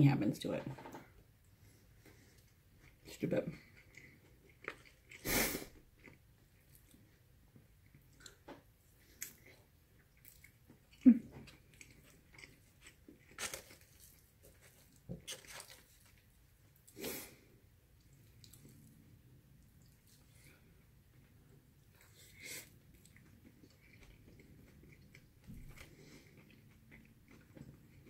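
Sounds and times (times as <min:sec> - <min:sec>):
chewing and mouth sounds: 0:03.6 - 0:17.0, 0:17.9 - 0:20.8, 0:21.8 - 0:28.0.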